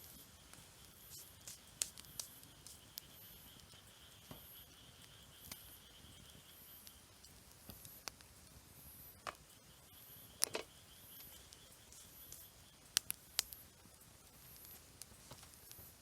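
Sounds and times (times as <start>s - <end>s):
campfire wood crackling: 0.0s - 16.0s.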